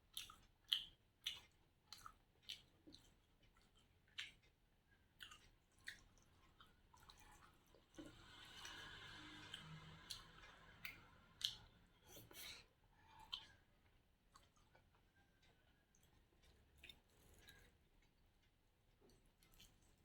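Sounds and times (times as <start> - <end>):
person chewing food: 0.0 - 20.0
wet mouth clicks and smacks: 0.1 - 4.6, 5.2 - 6.3, 8.6 - 12.5, 13.2 - 13.6.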